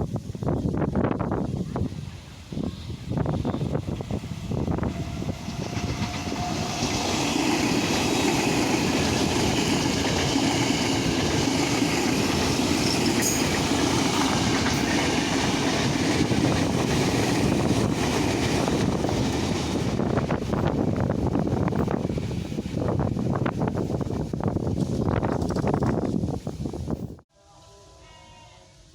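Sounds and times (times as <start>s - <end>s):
train wheels on rails: 0.3s - 27.2s.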